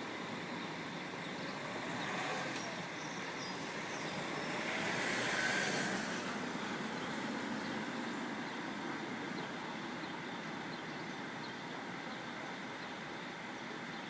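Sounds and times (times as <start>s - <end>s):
hissing noise: 1.4s - 9.6s.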